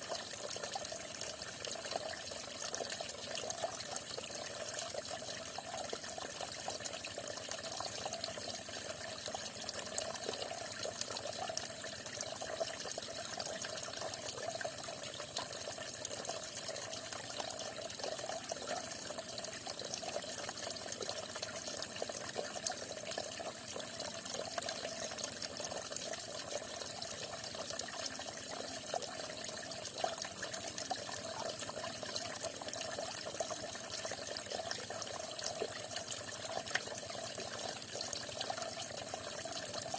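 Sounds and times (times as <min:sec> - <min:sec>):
water drips: 0:23.3 - 0:39.9.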